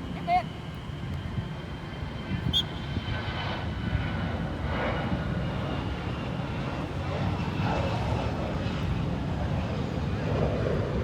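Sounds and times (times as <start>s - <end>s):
jet airliner engine rumble: 0.0s - 11.0s.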